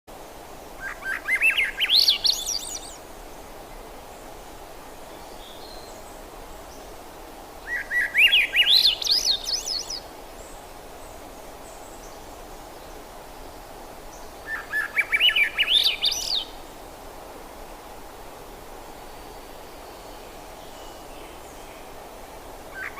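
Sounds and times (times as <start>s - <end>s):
background hiss: 0.1s - 22.9s.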